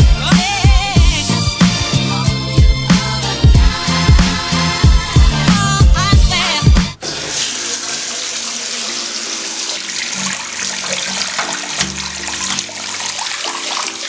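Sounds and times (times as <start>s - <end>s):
hip-hop music: 0.0s - 7.7s
water running from tap into tub: 3.6s - 14.0s.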